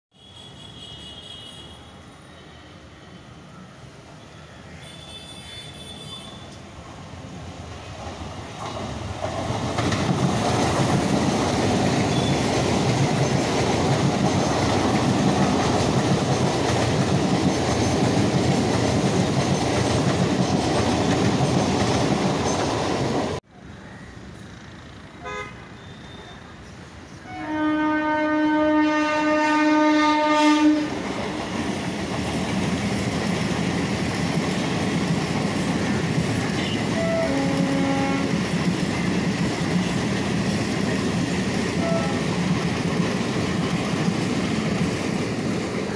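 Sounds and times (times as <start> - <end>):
quiet rail noise: 0.1 - 45.9
electric train passing: 0.7 - 45.9.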